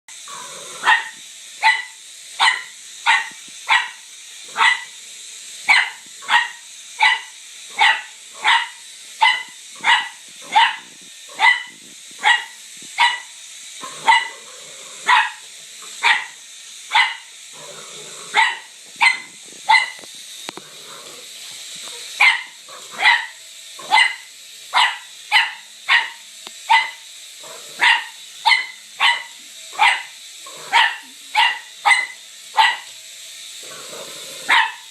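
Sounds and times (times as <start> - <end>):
dog barking: 0.8 - 4.9, 5.7 - 14.4, 15.1 - 15.4, 16.0 - 17.3, 18.3 - 20.0, 22.2 - 32.9, 34.5 - 34.9.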